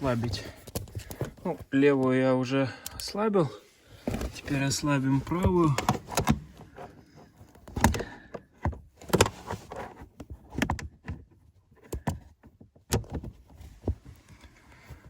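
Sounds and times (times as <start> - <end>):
handling noise: 0.0 - 2.2, 3.9 - 10.9.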